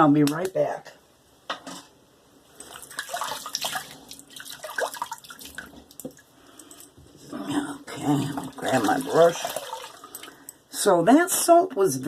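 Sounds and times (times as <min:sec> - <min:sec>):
water splashing at a sink: 0:02.6 - 0:06.2, 0:08.0 - 0:10.3.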